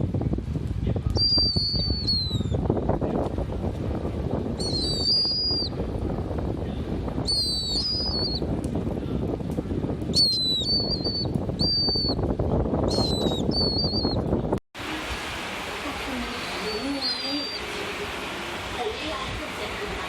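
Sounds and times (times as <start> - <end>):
pet bird whistling: 1.2 - 2.6, 4.6 - 5.7, 7.2 - 8.5, 10.1 - 12.2, 12.9 - 14.2, 16.5 - 17.7
low rushing noise: 14.8 - 20.0.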